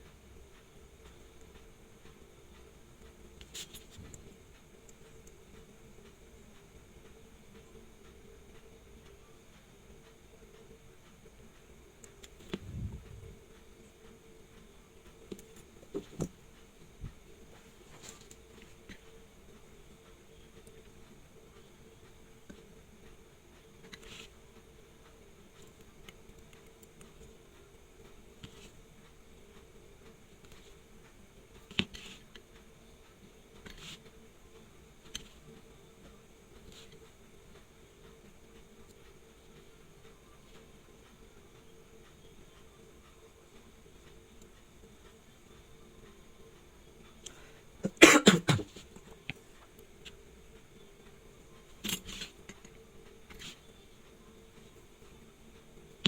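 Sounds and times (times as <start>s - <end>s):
low hum: 12.4s - 13.5s.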